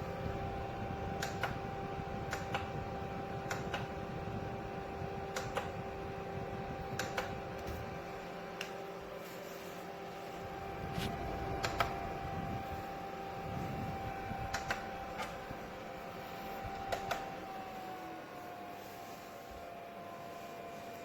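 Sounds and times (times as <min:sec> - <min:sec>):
small fan motor humming: 0:00.0 - 0:21.0
sharp clicks: 0:01.2 - 0:01.6, 0:02.3 - 0:02.7, 0:03.5 - 0:03.9, 0:05.3 - 0:05.7, 0:06.9 - 0:07.7, 0:11.6 - 0:12.0, 0:14.5 - 0:15.4, 0:16.8 - 0:17.3.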